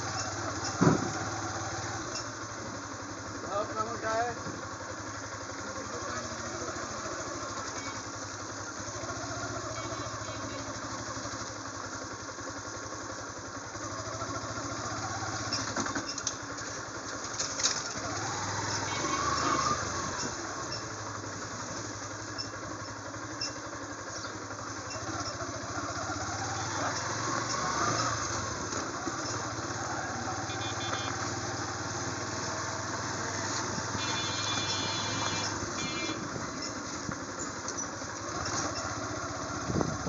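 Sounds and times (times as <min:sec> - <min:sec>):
motorcycle engine running: 0:00.0 - 0:40.0
vehicle passing: 0:25.6 - 0:36.6.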